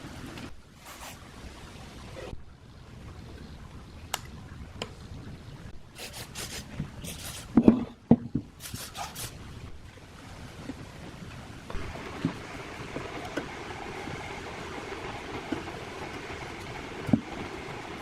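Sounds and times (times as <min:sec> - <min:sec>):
scraping strokes: 0:00.8 - 0:01.2, 0:06.0 - 0:07.6, 0:08.6 - 0:09.4.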